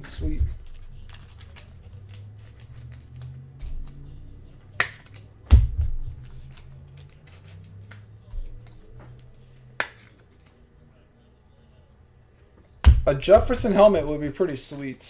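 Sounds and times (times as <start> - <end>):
faint low hum: 0.0 - 14.8
cards clicking and tapping on table: 0.3 - 10.5.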